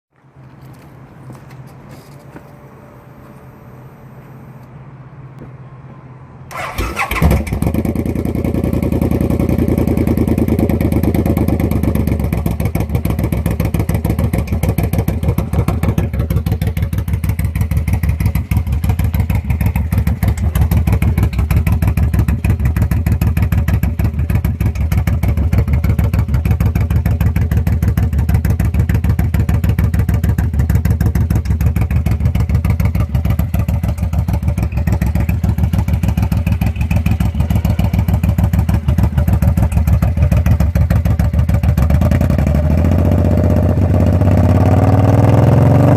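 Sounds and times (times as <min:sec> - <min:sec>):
low hum: 0:00.5 - 0:06.6
motorcycle engine starting and idling: 0:06.4 - 0:45.9.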